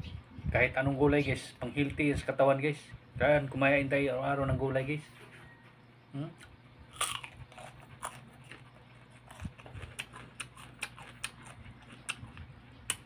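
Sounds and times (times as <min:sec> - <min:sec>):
chewing crunches: 0:06.4 - 0:13.0
cucumber crunching: 0:06.4 - 0:13.0.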